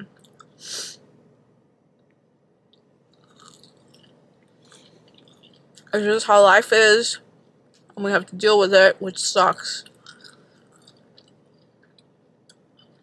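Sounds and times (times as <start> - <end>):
brief hiss: 0.6 - 1.0
person chewing food: 2.7 - 6.0, 9.8 - 13.0.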